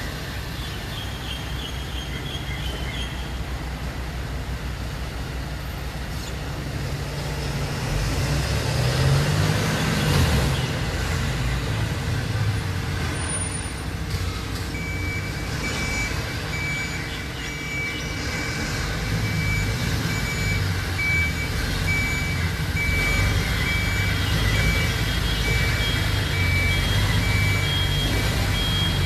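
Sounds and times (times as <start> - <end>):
diesel truck engine rumbling: 0.0 - 29.0
reversing alarm beeping: 14.6 - 29.0.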